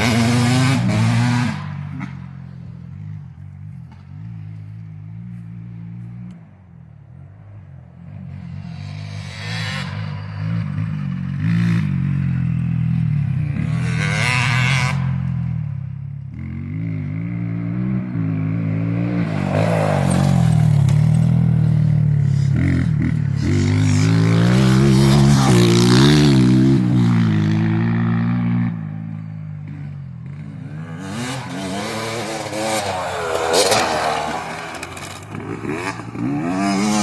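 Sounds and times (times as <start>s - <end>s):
dirt bike engine revving: 0.0s - 2.2s, 16.4s - 37.0s.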